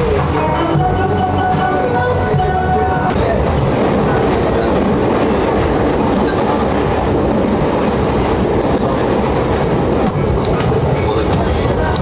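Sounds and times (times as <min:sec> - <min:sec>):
electric train wheels on rails: 0:00.0 - 0:12.0.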